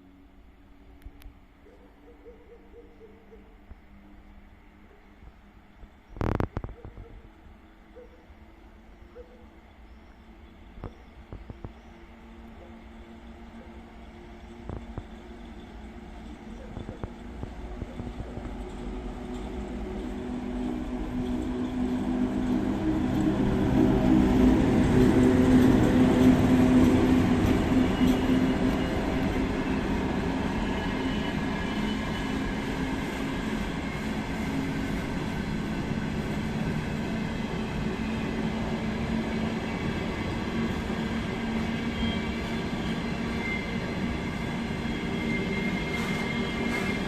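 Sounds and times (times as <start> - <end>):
locomotive low hum: 8.7 - 47.0
train wagons rolling by: 9.9 - 47.0
high wheel squeals: 41.7 - 47.0.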